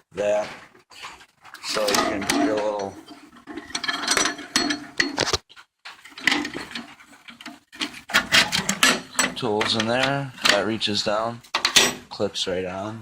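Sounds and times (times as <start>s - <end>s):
metal tools clanking in steel box: 1.6s - 5.4s, 6.0s - 10.8s, 11.5s - 12.2s.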